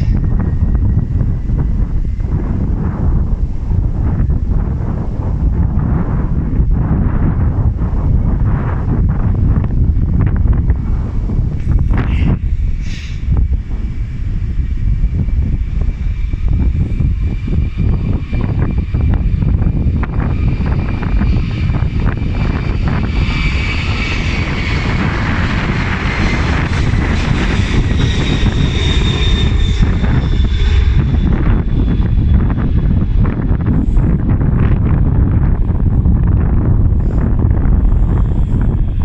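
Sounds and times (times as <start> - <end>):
airliner engines whining: 0.0 - 39.0
wind rumbling on microphone: 0.0 - 39.0.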